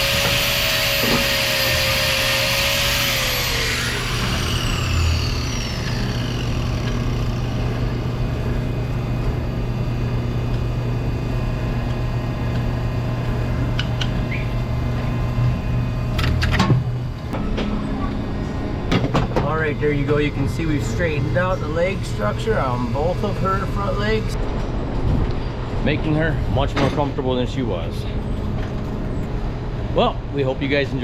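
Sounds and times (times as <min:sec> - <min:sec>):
angle grinder winding down: 0:00.0 - 0:08.9, 0:19.5 - 0:24.4
low machine hum: 0:00.0 - 0:31.0.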